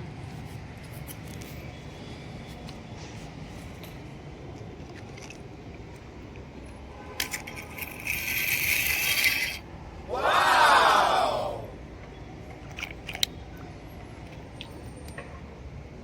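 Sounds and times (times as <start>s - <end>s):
metal toy cars clinking: 7.1s - 9.6s, 12.6s - 13.4s.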